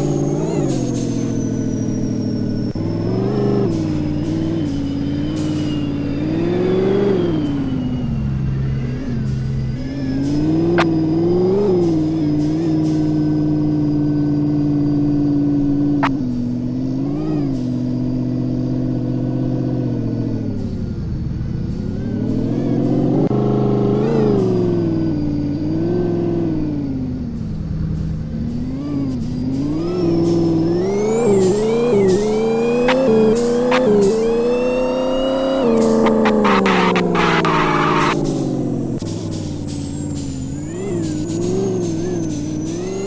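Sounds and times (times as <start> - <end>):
truck engine revving: 0.0 - 43.0
sharp click: 31.4 - 40.4.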